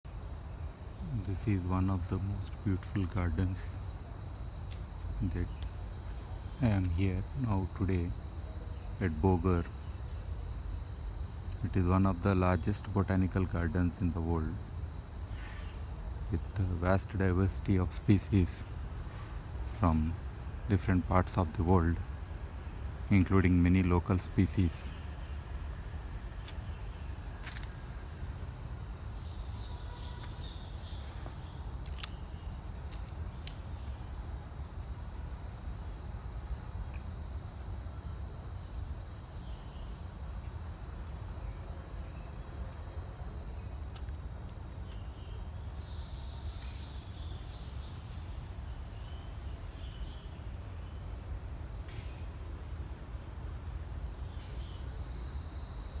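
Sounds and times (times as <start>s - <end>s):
insects trilling: 0.1s - 56.0s
faint clicks: 31.8s - 32.3s, 32.9s - 34.0s, 43.8s - 44.2s.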